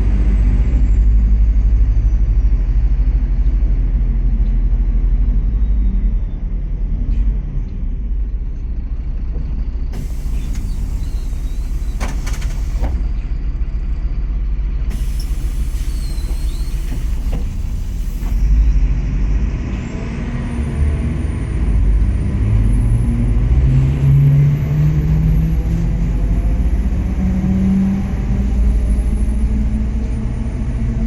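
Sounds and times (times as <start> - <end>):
bus engine rumble: 0.0 - 31.0
air system hiss: 10.0 - 13.0, 14.9 - 18.5.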